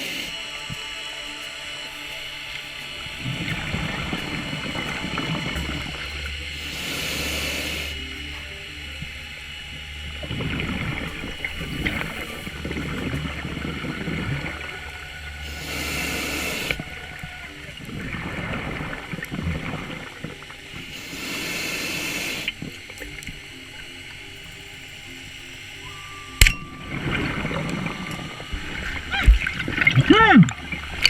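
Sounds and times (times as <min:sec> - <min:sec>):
regulator inhale hiss: 0:00.0 - 0:18.4, 0:20.2 - 0:26.4
exhaled bubbles burbling: 0:25.8 - 0:31.0.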